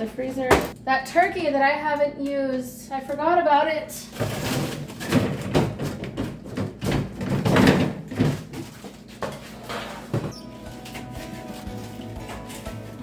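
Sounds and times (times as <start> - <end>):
frozen food packages rustling and knocking: 4.1 - 13.0.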